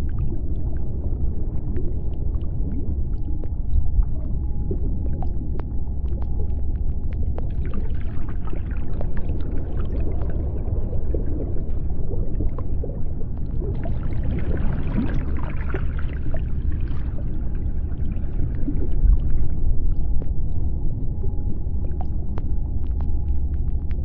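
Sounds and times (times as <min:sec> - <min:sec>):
deep underwater rumble: 0:00.0 - 0:24.0
dense crackling and clicks: 0:00.0 - 0:24.0
faint steady hum: 0:00.0 - 0:24.0.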